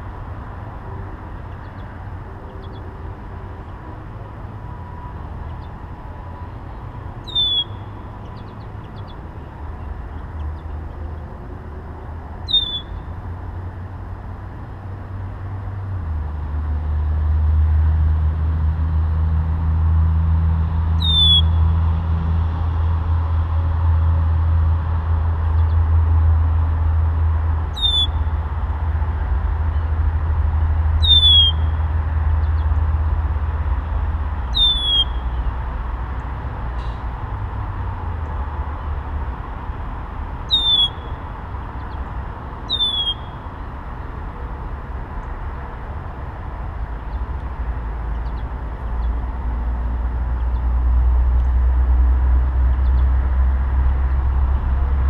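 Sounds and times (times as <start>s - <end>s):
songbird whistled call: 7.2s - 9.1s, 12.4s - 13.0s, 21.0s - 21.6s, 27.7s - 28.3s, 31.0s - 31.7s, 34.5s - 35.4s, 40.5s - 41.2s, 42.7s - 43.4s.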